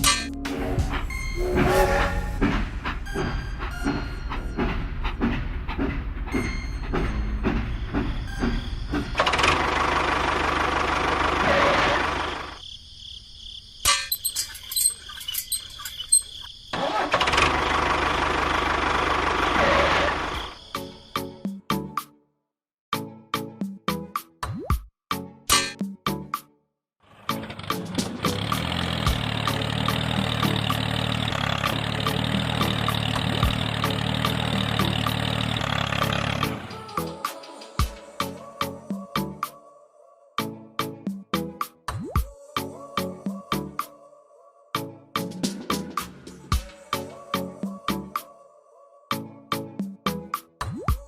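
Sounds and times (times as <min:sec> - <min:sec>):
small engine running: 0:08.2 - 0:12.6, 0:16.8 - 0:20.6, 0:27.1 - 0:36.9
background music with beat: 0:36.7 - 0:39.6, 0:40.4 - 0:44.0, 0:44.8 - 0:48.3, 0:49.1 - 0:51.0.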